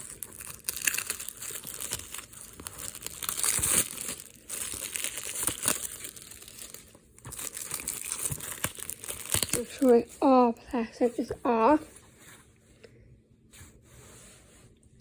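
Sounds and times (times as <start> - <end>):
plastic wrap tearing and crinkling: 0.0 - 10.4.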